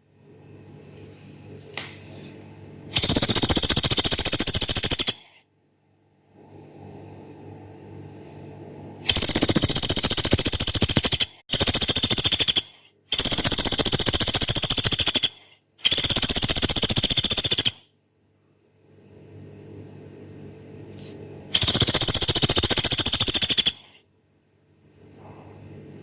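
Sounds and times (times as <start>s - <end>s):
faint low hum: 0.0s - 10.8s, 17.9s - 26.0s
woodpecker chattering trills: 3.0s - 5.3s, 9.1s - 17.8s, 21.6s - 23.9s.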